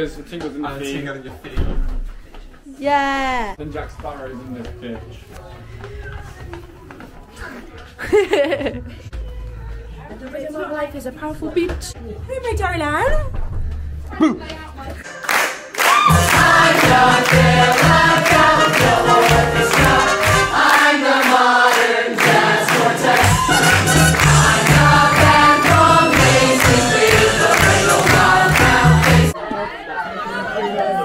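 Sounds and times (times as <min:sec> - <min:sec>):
group of voices singing: 0:16.1 - 0:31.0.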